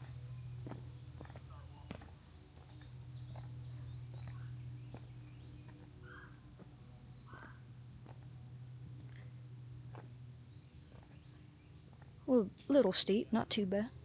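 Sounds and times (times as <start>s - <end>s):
footsteps on a trail: 0.0s - 6.8s, 8.0s - 8.3s, 9.0s - 10.2s, 10.8s - 12.2s
high insect trill: 0.0s - 14.0s
low steady hum: 0.0s - 14.0s.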